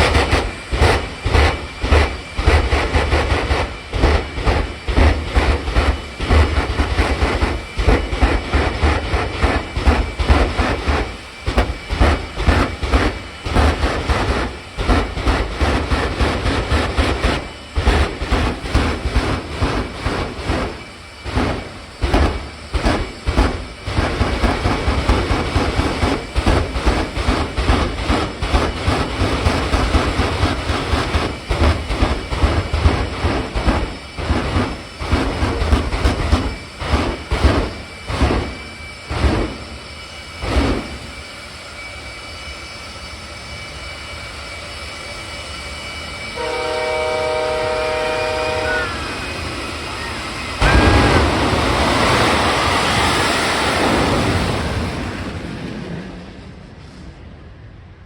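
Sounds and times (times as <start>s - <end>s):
jet engine roar: 0.0s - 58.0s
truck horn: 46.4s - 49.2s, 50.6s - 51.6s
loud exhaust pops: 50.6s - 53.1s.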